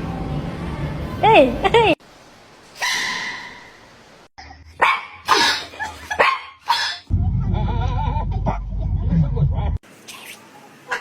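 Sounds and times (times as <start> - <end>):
dog barking: 2.8 - 3.7, 4.8 - 7.1
sudden sound: 7.1 - 9.8.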